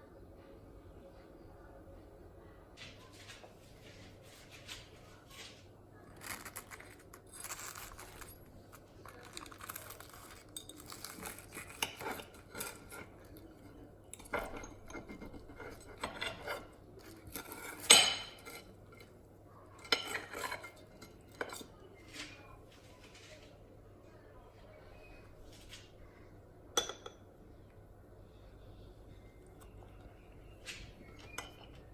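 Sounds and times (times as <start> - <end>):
dishes and cutlery clinking: 6.2 - 22.4, 26.7 - 27.3, 29.6 - 31.9.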